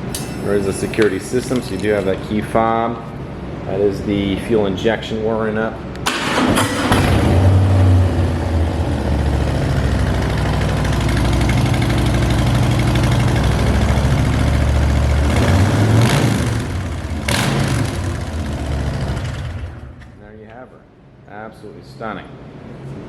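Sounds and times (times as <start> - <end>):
motorcycle engine idling: 9.2 - 15.3.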